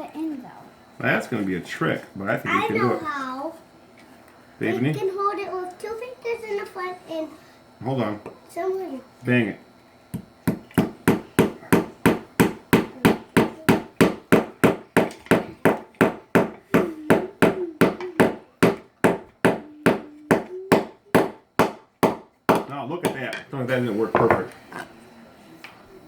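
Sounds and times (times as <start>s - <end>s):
hammer driving nail into wood: 10.2s - 23.2s.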